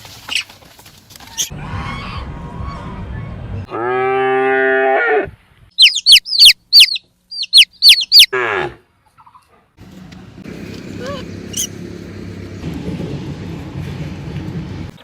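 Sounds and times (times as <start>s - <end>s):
quick high chirps: 5.8s - 8.3s.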